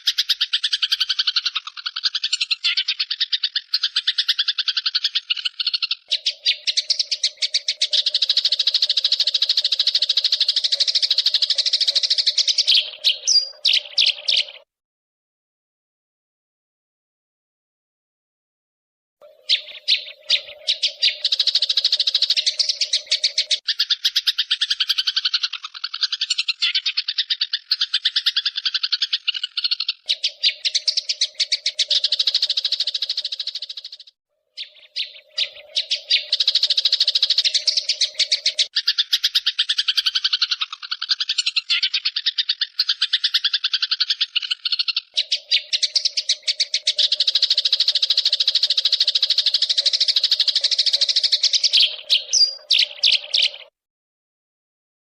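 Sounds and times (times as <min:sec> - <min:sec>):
songbird chirping trills: 0:00.0 - 0:14.7, 0:19.2 - 0:53.8.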